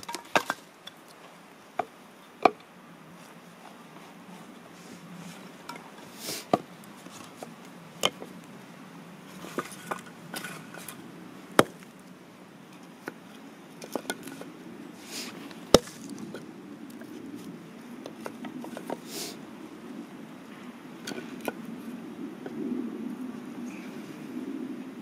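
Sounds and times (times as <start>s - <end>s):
axe striking firewood: 0.0s - 0.6s, 11.6s - 11.9s, 15.7s - 16.2s.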